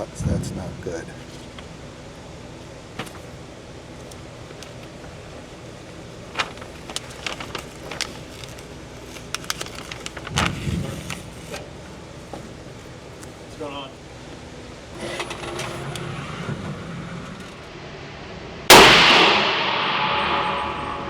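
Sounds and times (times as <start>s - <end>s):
steady background hiss: 0.0s - 21.0s
heavy dull thump: 0.1s - 1.4s.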